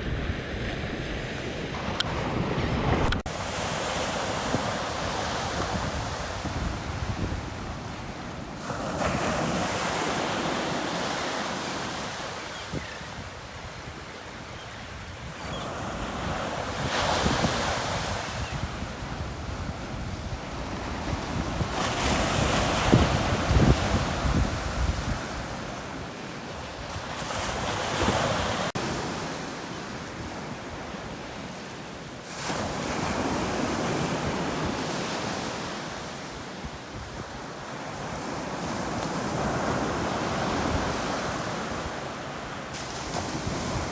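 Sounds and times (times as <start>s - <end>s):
waves crashing on a beach: 0.0s - 43.9s.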